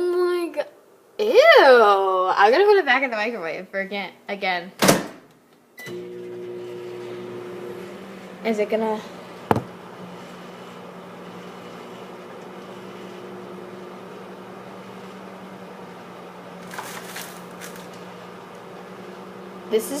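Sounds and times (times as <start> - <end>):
microwave oven humming: 5.8 - 20.0.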